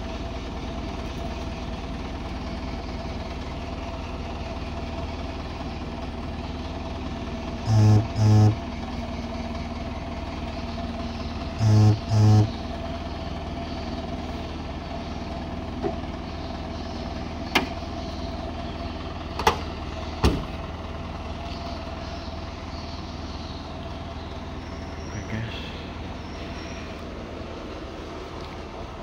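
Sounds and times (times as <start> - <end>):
engine idling: 0.0 - 29.0
car horn honks: 7.6 - 8.6, 11.6 - 12.6.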